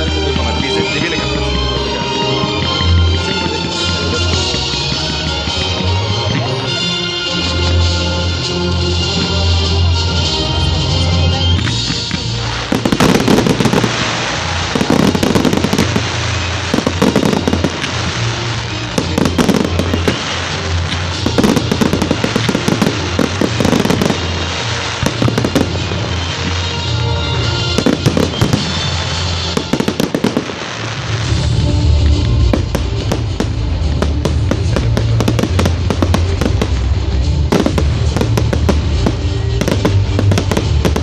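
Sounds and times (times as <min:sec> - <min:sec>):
firework bangs and crackles: 0:00.0 - 0:41.0
music with steady bass: 0:00.0 - 0:41.0.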